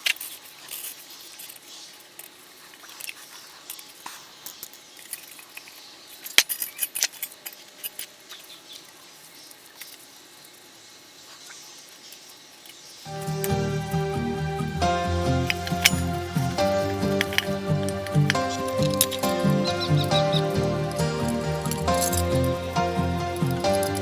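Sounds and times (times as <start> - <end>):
small metal parts clinking: 6.2 - 8.2, 15.4 - 24.0.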